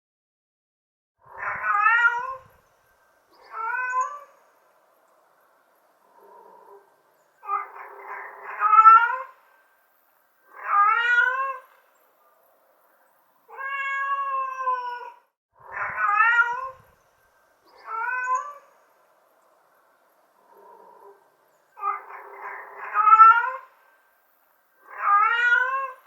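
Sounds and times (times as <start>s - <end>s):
cat meowing: 1.3s - 2.6s, 3.4s - 4.4s, 7.4s - 9.4s, 10.5s - 11.8s, 13.5s - 17.0s, 17.7s - 18.7s, 21.8s - 23.7s, 24.8s - 26.0s.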